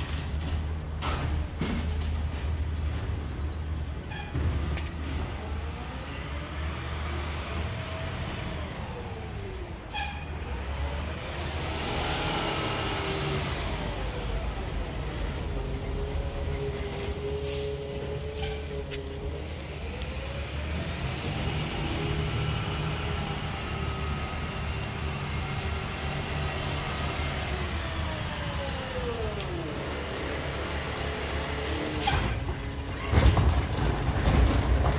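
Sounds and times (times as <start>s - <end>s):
garbage truck engine and hydraulic whine: 0.0s - 34.9s
air brake hiss: 17.4s - 17.8s.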